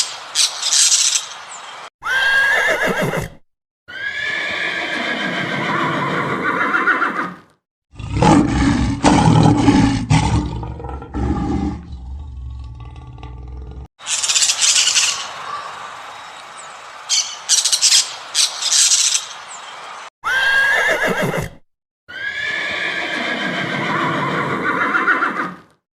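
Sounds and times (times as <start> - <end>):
harsh high-pitched animal calls: 20.2 - 21.5.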